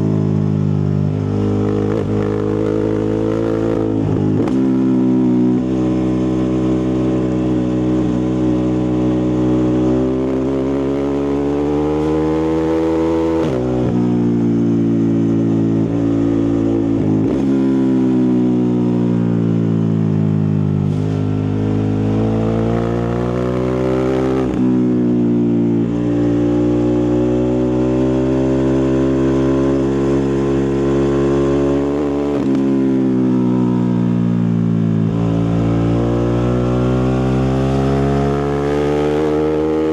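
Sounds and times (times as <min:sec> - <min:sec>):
motorcycle engine and exhaust: 0:00.0 - 0:39.9.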